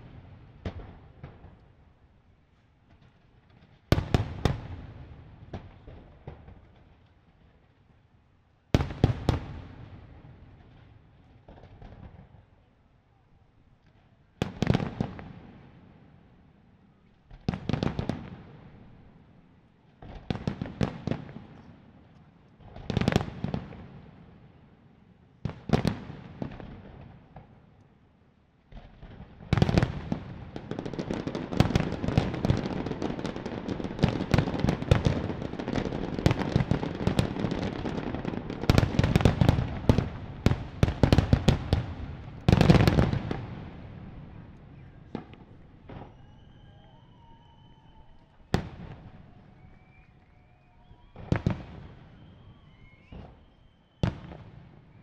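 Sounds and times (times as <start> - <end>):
fireworks barrage crackling: 0.0 - 7.7, 28.7 - 55.0.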